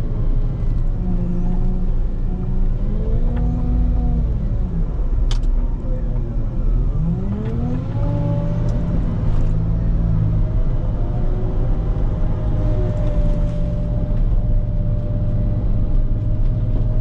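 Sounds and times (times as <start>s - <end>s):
steady engine whine: 0.0s - 17.0s.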